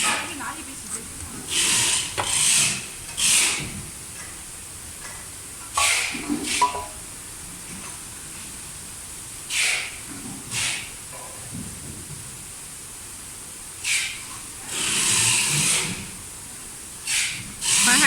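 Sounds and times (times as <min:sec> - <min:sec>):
short hissing bursts: 0:10.6 - 0:10.9, 0:17.0 - 0:18.0.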